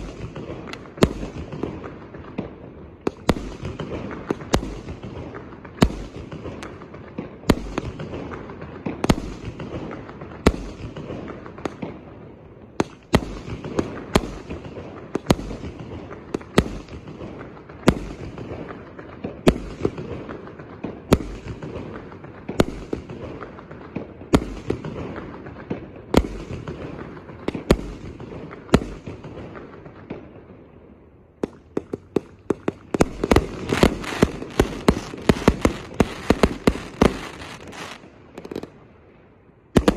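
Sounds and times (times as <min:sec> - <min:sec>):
firework crackle: 0:00.0 - 0:30.3, 0:31.4 - 0:39.1, 0:39.7 - 0:39.9
firework cake bangs: 0:31.7 - 0:38.7.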